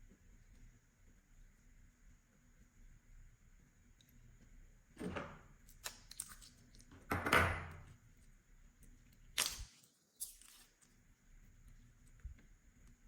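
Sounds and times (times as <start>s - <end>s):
slime squishing: 5.6s - 6.9s, 8.9s - 12.4s.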